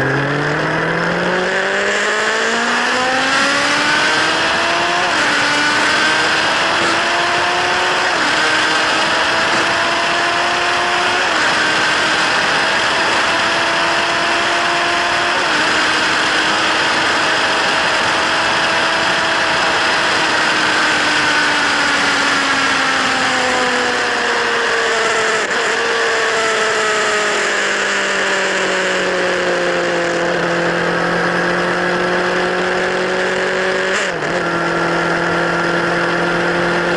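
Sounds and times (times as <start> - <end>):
motorcycle engine under way: 0.0 - 36.9.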